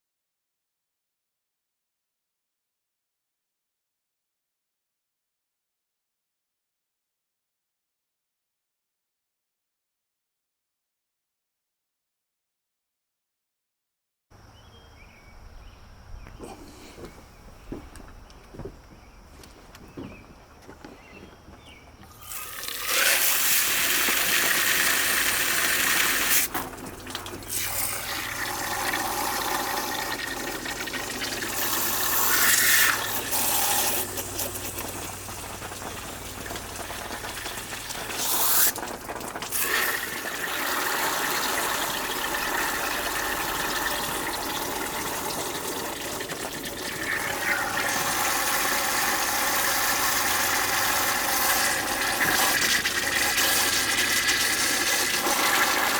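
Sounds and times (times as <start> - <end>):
water running from tap: 22.1 - 55.9.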